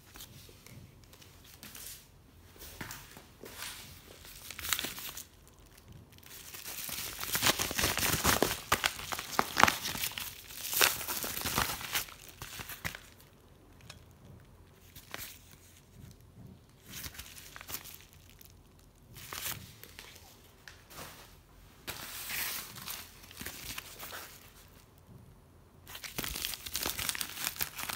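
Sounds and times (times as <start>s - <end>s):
packaging rustling: 3.6s - 13.4s, 25.9s - 27.9s.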